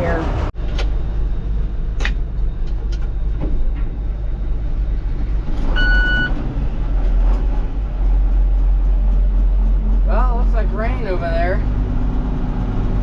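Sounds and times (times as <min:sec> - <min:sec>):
vehicle engine rumbling: 0:00.0 - 0:13.0
electronic beep: 0:05.8 - 0:06.3.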